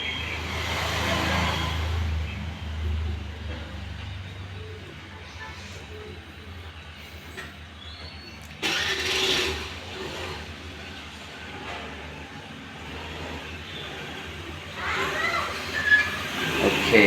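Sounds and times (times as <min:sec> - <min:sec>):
engine starting and running: 0:07.2 - 0:17.0.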